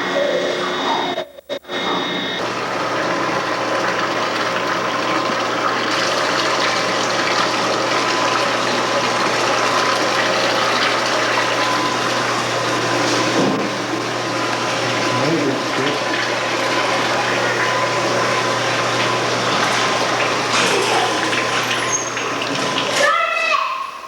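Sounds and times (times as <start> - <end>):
machinery low hum: 5.9 - 23.0.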